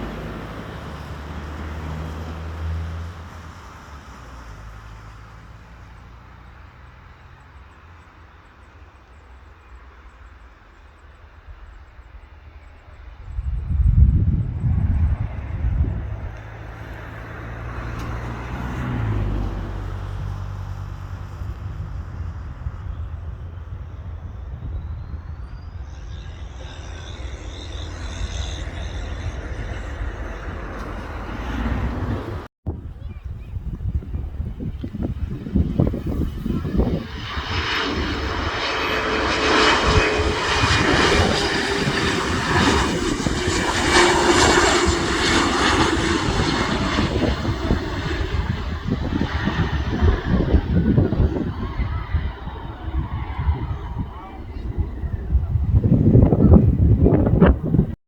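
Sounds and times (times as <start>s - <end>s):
distant aircraft engine hum: 0.0s - 58.0s
low rumble: 13.1s - 58.0s.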